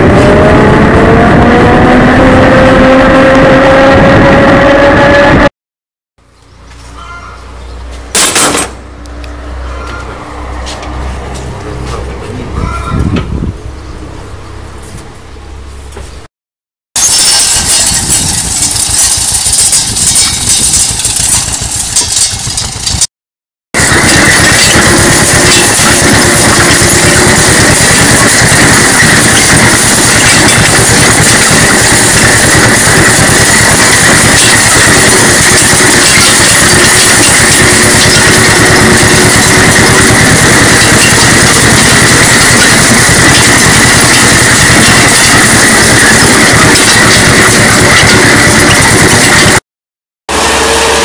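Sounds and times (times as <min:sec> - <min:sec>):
farm machine engine clattering: 0:17.0 - 0:23.1, 0:23.8 - 0:49.6
steady high whine: 0:23.8 - 0:49.6.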